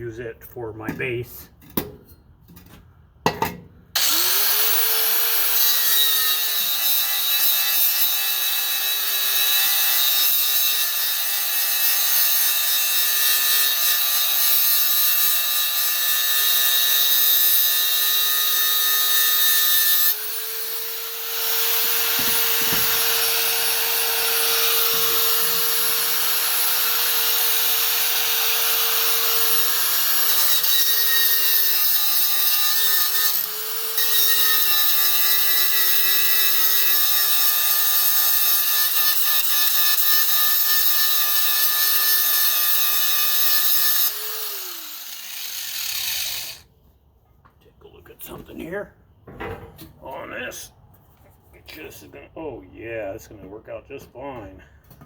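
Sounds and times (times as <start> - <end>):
angle grinder grinding steel: 4.0 - 46.6.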